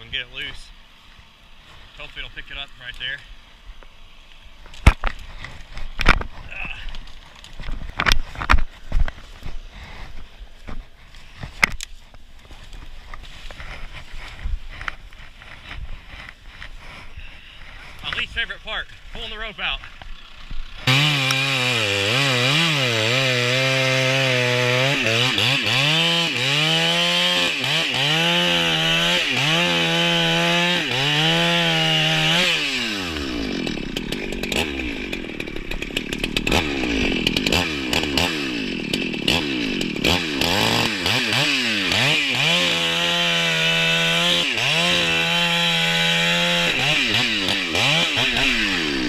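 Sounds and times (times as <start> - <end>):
chainsaw cutting through wood: 0.0 - 49.0
chainsaw revving: 19.3 - 49.0.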